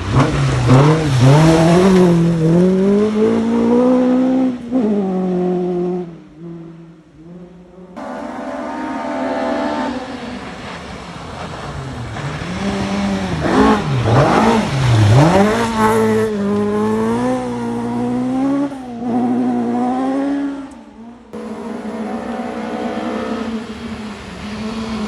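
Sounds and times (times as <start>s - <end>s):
rally car engine at speed: 0.0s - 11.1s, 12.1s - 20.6s, 21.4s - 25.0s
car engine starting: 21.4s - 25.0s.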